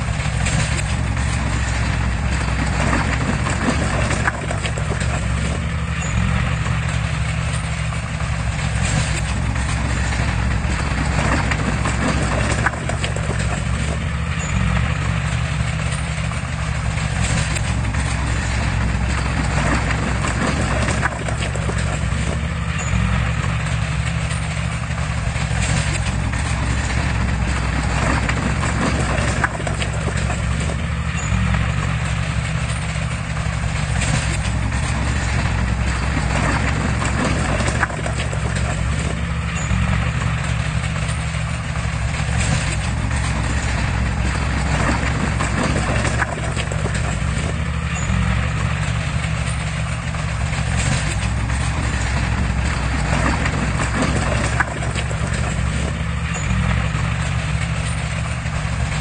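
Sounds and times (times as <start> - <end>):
diesel engine droning: 0.0 - 59.0
steel tracks clanking: 0.0 - 59.0.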